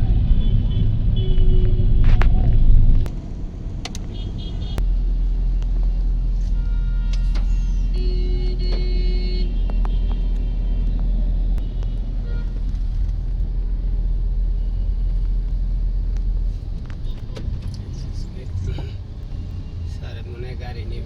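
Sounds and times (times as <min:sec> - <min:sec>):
vehicle rumble in traffic: 0:00.0 - 0:21.0.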